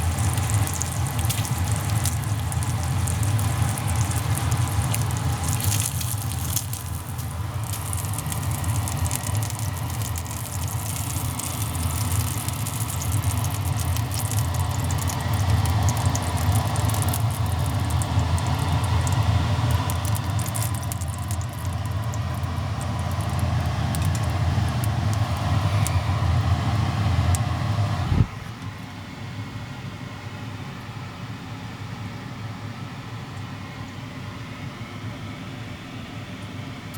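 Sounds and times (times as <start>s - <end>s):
pork sizzling over fire: 0.0s - 28.0s
crackles and pops: 0.0s - 28.6s
steady low rumble: 0.0s - 28.6s.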